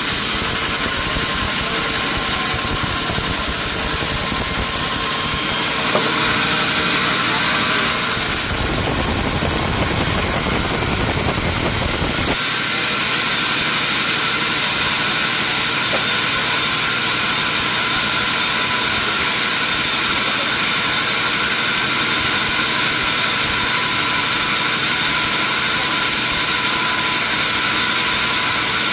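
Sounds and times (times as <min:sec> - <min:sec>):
sawmill machinery hissing: 0:00.0 - 0:28.9
deep rumble: 0:08.2 - 0:12.4.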